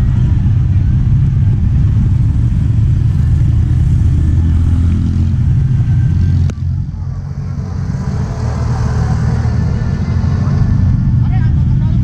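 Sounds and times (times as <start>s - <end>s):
road vehicle rumbling: 0.0s - 12.0s.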